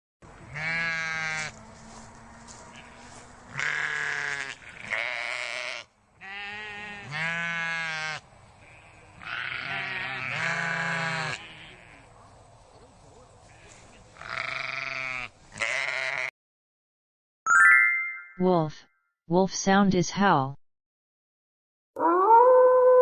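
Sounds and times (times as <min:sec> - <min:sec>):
sheep bleating: 0:00.5 - 0:01.6, 0:02.5 - 0:12.1, 0:13.5 - 0:16.3.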